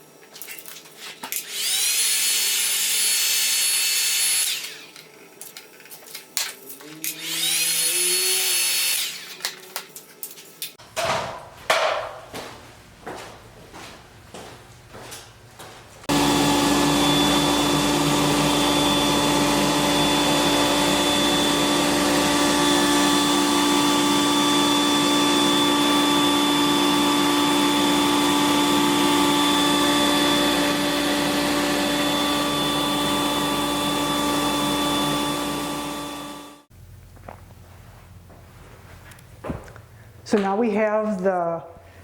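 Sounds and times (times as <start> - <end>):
motor whine: 6.8 - 9.5, 16.1 - 36.7.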